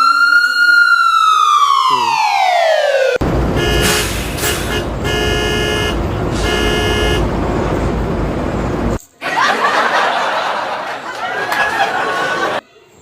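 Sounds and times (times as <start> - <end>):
engine rumble: 3.2 - 9.0
cartoon car horn honking: 3.5 - 7.3.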